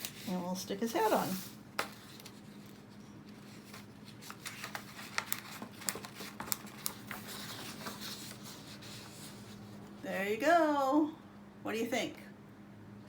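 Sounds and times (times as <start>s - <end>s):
soft paper rustling: 0.0s - 10.0s
paper crinkling and clicks: 1.8s - 9.9s.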